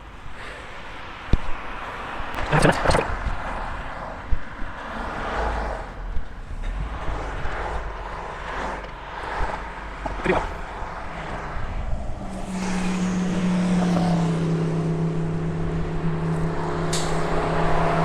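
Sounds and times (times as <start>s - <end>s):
traffic rushing: 0.0s - 18.0s
wind buffeting microphone: 5.8s - 18.0s.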